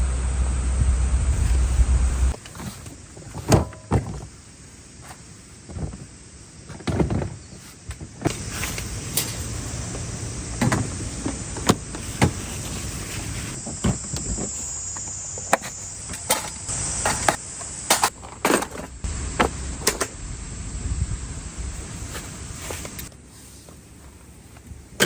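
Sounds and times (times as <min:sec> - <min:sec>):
high insect buzz: 0:08.3 - 0:18.1.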